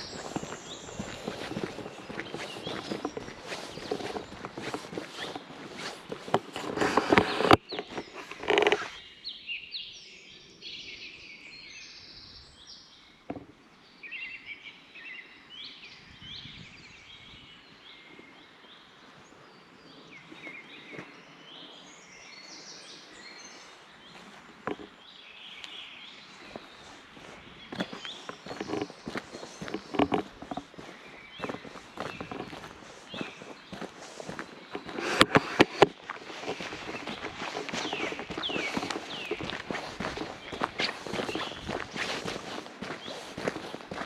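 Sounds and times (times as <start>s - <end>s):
footsteps on forest trail: 0.0s - 9.1s, 19.8s - 44.0s
songbirds chirping: 0.0s - 44.0s.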